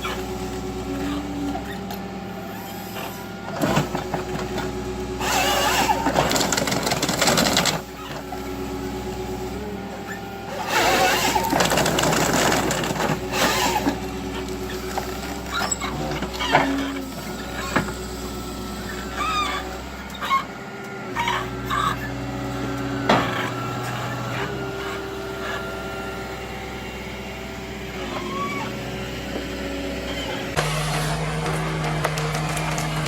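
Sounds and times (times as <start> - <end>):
heavy machine engine running: 0.0 - 33.0
loud engine hum: 0.0 - 33.0
short squeaks and creaks: 1.0 - 4.6, 5.2 - 8.3, 10.0 - 17.9, 18.9 - 20.5, 21.1 - 25.8, 28.0 - 29.4, 30.0 - 31.3.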